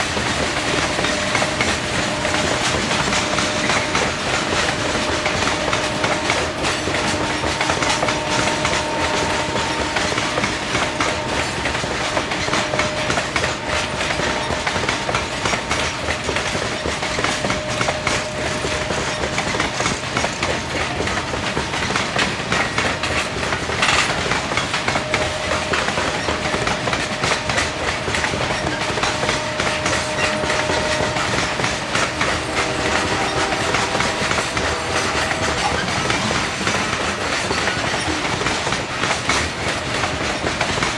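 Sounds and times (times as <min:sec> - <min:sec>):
train wheels clacking over rail joints: 0:00.0 - 0:40.9
faint ringing wheel squeal: 0:23.9 - 0:38.3.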